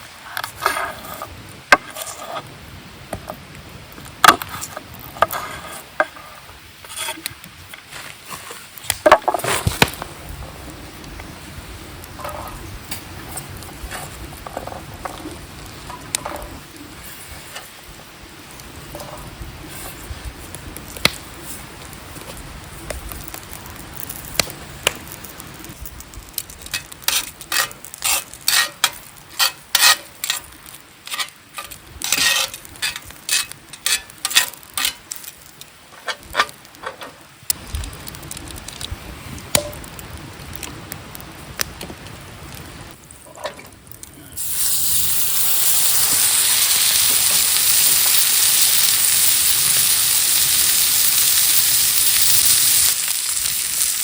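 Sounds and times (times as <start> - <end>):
steak sizzling over campfire: 0.0 - 54.0.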